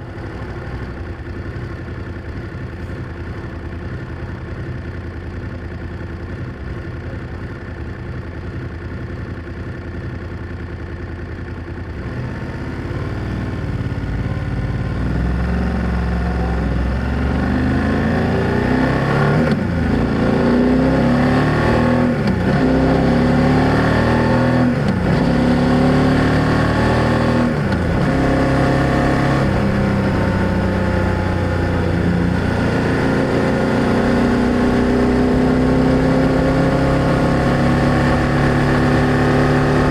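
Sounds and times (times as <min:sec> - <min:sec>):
motorcycle engine accelerating: 0:08.5 - 0:39.9.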